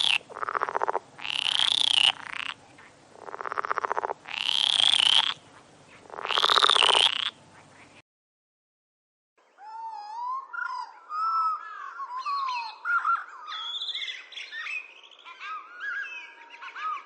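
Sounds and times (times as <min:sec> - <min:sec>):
higher arching animal calls: 0:00.0 - 0:08.0, 0:09.5 - 0:17.0
pulsed croaking calls: 0:00.0 - 0:08.0.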